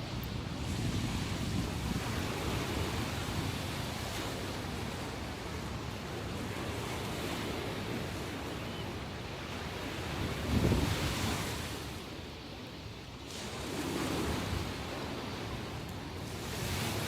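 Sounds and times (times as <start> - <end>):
wind on microphone: 0.0 - 12.1
ocean waves breaking on shore: 0.0 - 17.0.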